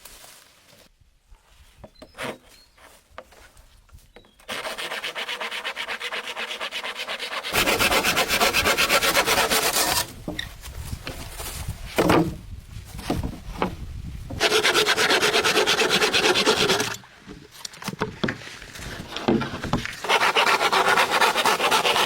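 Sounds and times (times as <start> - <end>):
hand tool rasping bamboo: 4.5 - 10.5, 14.3 - 17.0, 18.8 - 22.0.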